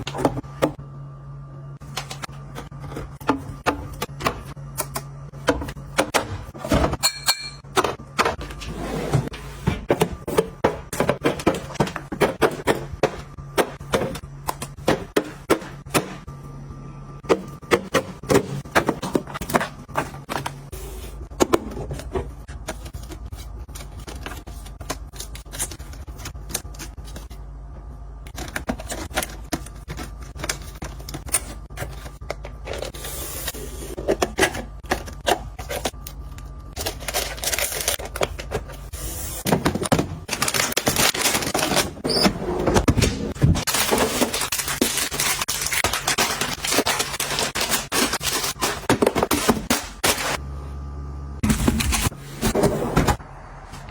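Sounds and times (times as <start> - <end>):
kitchen items clicking and tapping: 1.8 - 16.2, 17.2 - 20.6, 33.8 - 50.3.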